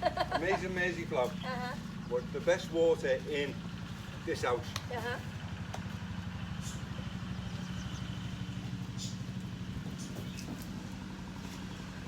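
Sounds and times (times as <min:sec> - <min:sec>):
small engine humming: 0:00.1 - 0:12.0.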